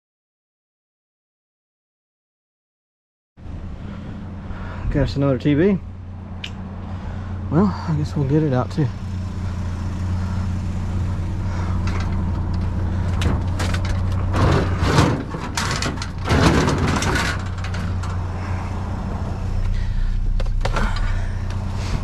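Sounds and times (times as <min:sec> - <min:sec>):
vehicle engine idling: 0:03.4 - 0:22.0
scraping and clattering: 0:11.6 - 0:18.6.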